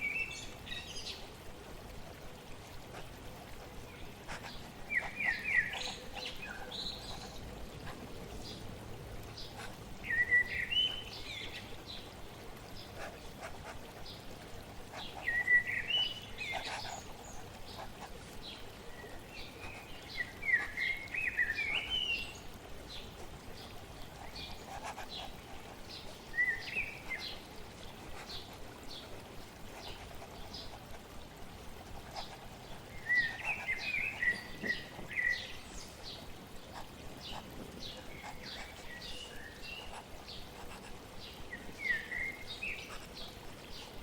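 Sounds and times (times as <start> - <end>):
flowing water hiss: 0.0 - 44.0
songbird singing: 4.9 - 7.4, 9.4 - 12.0, 15.0 - 17.8, 25.9 - 27.4, 32.9 - 36.3, 37.2 - 40.4, 41.2 - 44.0.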